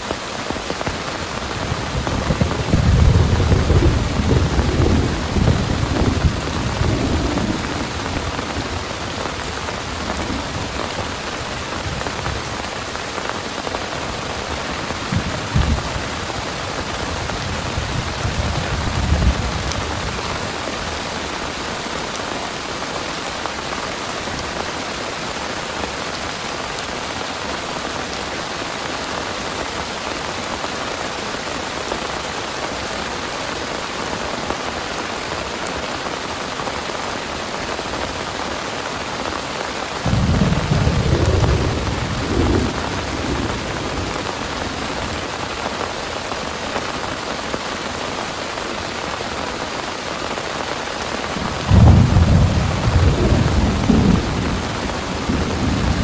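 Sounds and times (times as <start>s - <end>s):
heavy rain pouring: 0.0s - 56.0s
thunder rumbling: 1.3s - 12.7s, 13.9s - 21.0s, 40.0s - 45.5s, 51.3s - 56.0s.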